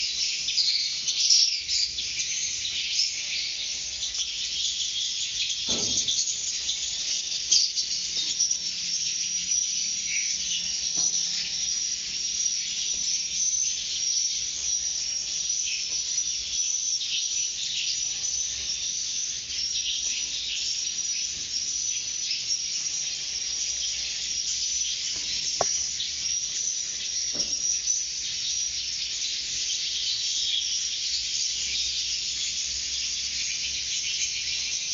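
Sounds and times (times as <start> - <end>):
insects chorus: 0.0 - 34.9
birds chirping: 25.1 - 26.2.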